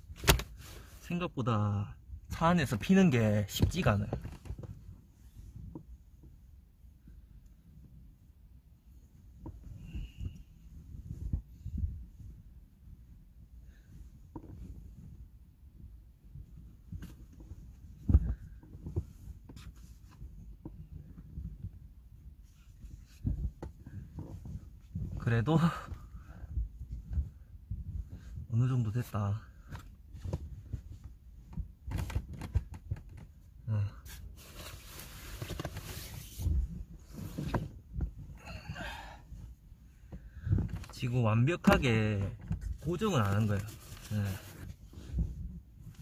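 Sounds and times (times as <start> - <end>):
gear handling knocks and clicks: 0.0 - 0.6, 3.5 - 5.0, 9.3 - 9.8, 14.2 - 15.2, 16.4 - 28.4, 29.6 - 33.6, 39.4 - 46.0.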